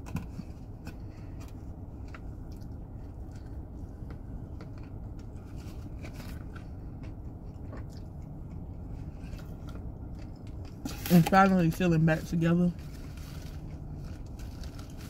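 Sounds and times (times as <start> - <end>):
low hum: 0.0 - 15.0
chewing and mouth clicks: 6.2 - 10.8.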